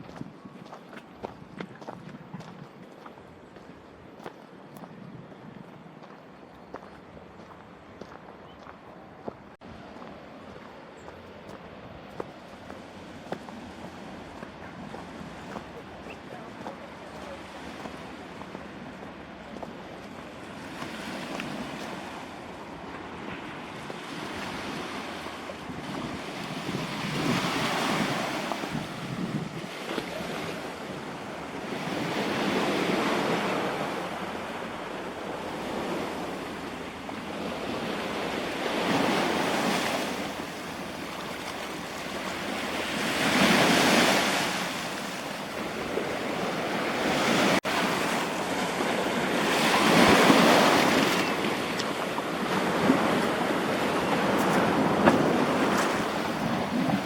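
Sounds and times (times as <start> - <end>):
wind on microphone: 0.0 - 7.6, 20.2 - 57.0
sea waves breaking: 9.6 - 57.0.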